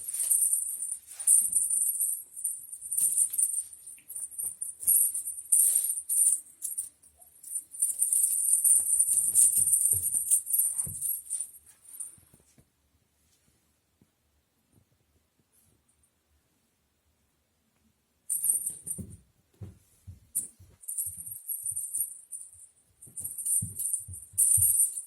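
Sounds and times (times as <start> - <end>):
small bells jingling: 0.0 - 12.1, 18.3 - 19.2, 20.4 - 25.0.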